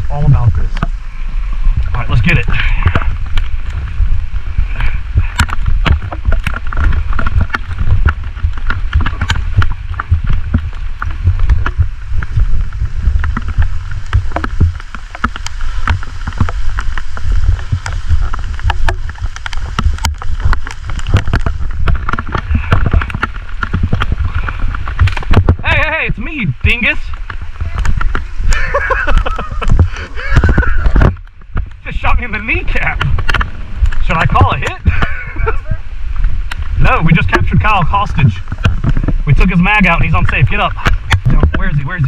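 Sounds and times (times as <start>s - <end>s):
low wind rumble on microphone: 0.0s - 42.0s
gear rustling and clattering: 1.9s - 25.6s.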